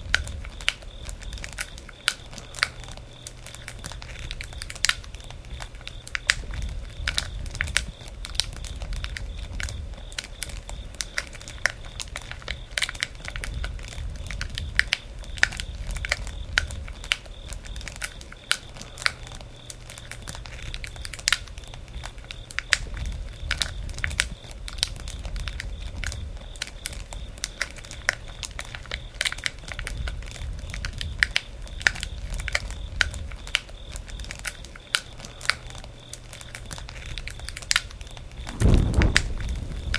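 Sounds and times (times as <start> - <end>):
low rumble of flame: 0.0 - 34.5, 35.2 - 39.9
campfire crackling: 38.3 - 39.9.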